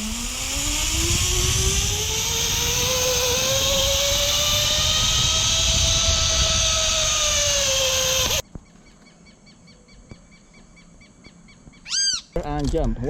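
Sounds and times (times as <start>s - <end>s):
wind rushing: 0.0s - 8.4s
zipline pulleys whining on cable: 0.0s - 8.4s.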